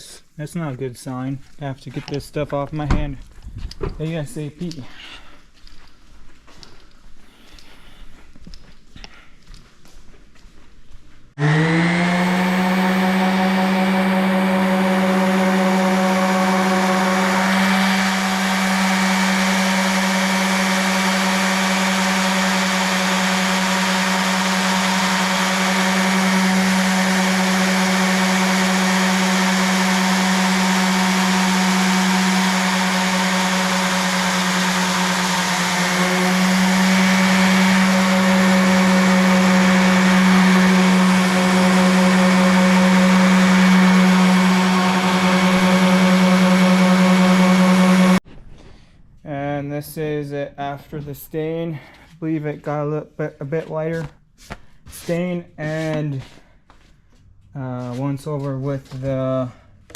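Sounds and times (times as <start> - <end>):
electric sander running: 11.4 - 48.2.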